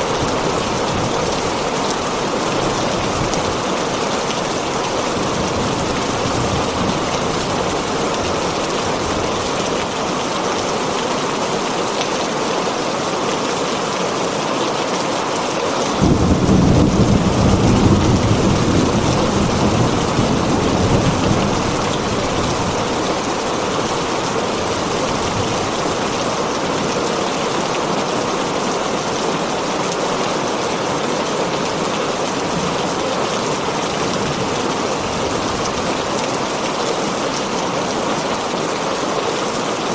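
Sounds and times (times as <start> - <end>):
heavy rain on a tin roof: 0.0 - 39.9
thunder rumbling: 16.0 - 26.2.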